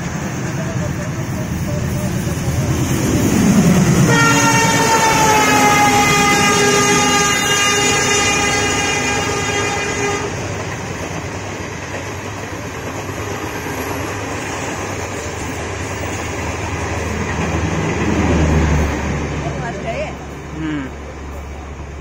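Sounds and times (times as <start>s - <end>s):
train rushing and rumbling: 0.0s - 22.0s
train horn: 4.0s - 10.5s.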